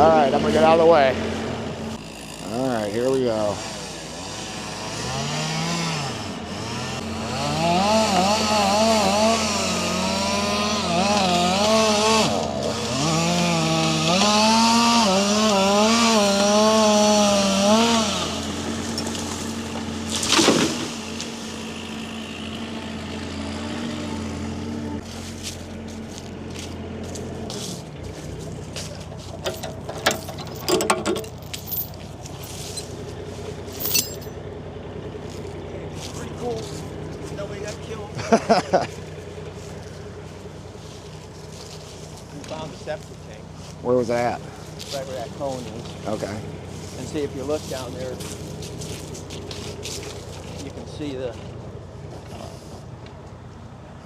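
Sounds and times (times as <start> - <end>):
chainsaw cutting wood: 1.8 - 24.6
wood cracking: 18.8 - 21.4.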